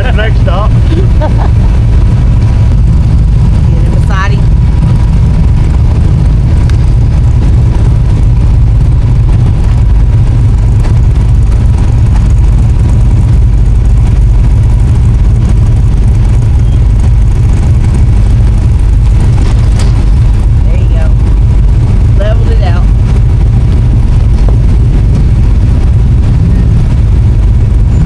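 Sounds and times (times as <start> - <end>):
off-road vehicle engine rumbling: 0.0 - 28.0.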